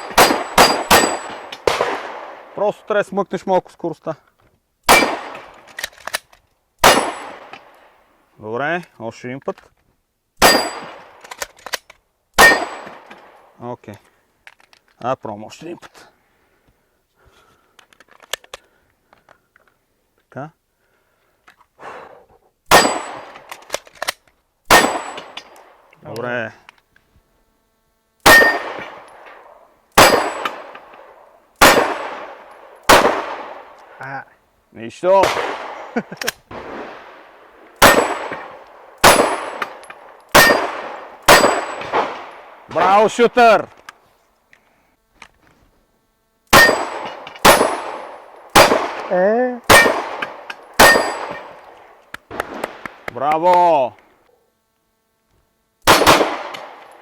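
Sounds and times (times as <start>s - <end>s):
pistol shots with ringing tail: 0.0s - 2.6s, 4.8s - 5.7s, 6.8s - 7.8s, 10.4s - 11.2s, 12.4s - 13.4s, 22.7s - 23.6s, 24.7s - 25.8s, 28.2s - 33.8s, 35.2s - 37.2s, 37.8s - 43.2s, 46.5s - 53.0s, 55.8s - 57.0s.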